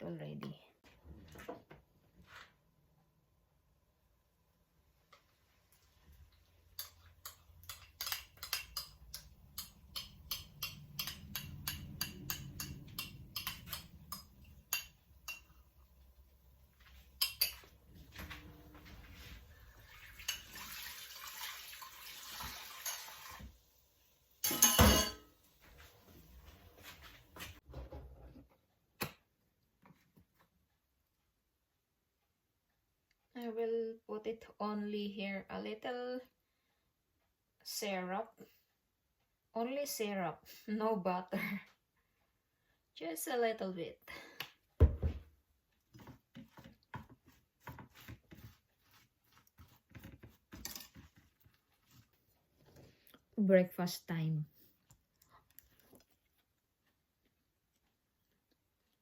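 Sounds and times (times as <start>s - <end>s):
dishes and cutlery clinking: 6.7s - 15.7s, 17.2s - 17.8s, 24.4s - 25.3s.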